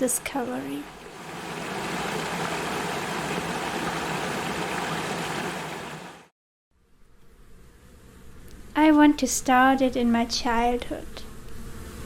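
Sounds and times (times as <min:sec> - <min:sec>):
running water: 0:00.0 - 0:06.3.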